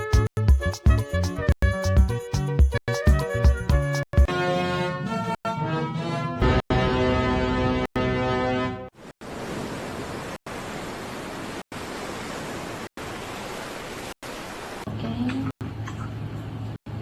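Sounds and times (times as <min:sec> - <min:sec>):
music: 0:00.0 - 0:08.9.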